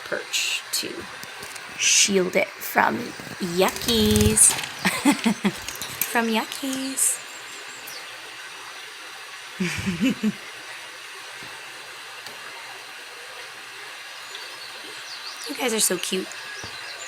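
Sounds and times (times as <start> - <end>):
woman's voice: 0.0 - 1.1, 1.8 - 7.2, 15.5 - 16.3
background hiss: 9.5 - 10.4.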